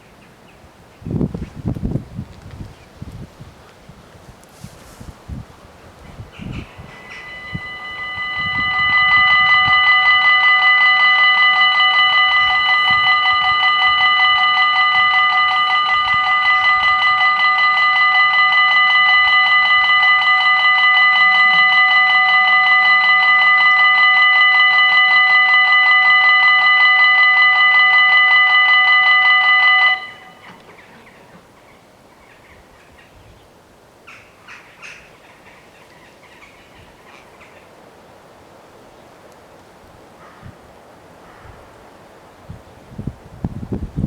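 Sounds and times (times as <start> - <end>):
level crossing warning bells: 6.3 - 31.6.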